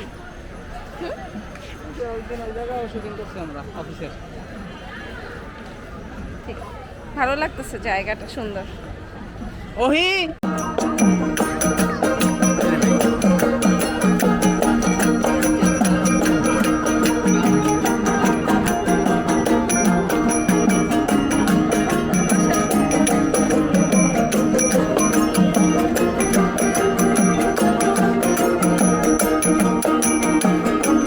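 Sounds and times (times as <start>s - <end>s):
fast percussion strokes: 10.4s - 31.0s
small bells ringing: 10.4s - 31.0s.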